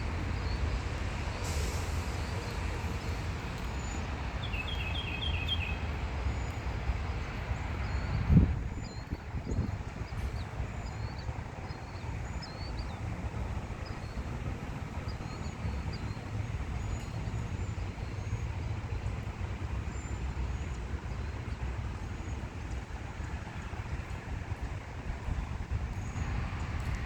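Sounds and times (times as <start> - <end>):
low outdoor rumble: 0.0 - 27.0
small birds chirping: 2.2 - 6.6.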